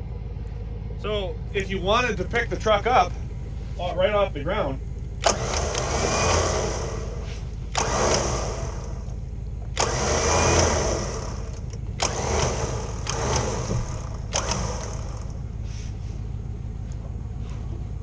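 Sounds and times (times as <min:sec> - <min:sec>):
steady low hum: 0:00.0 - 0:18.0
winch motor whirring: 0:01.0 - 0:18.0
winch switch click: 0:05.2 - 0:06.4.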